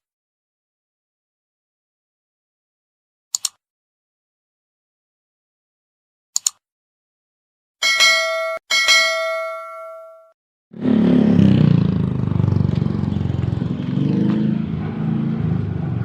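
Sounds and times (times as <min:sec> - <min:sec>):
ringing chime dings: 0:07.8 - 0:10.4
motorbike engine running: 0:10.8 - 0:16.0.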